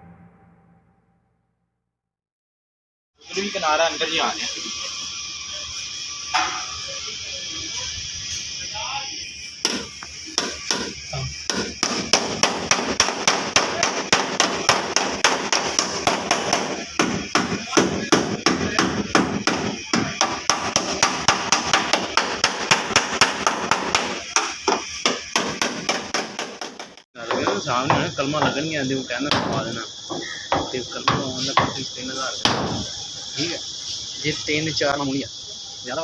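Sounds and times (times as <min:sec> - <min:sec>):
hammer on sheet metal: 0:06.3 - 0:06.8, 0:09.6 - 0:28.0.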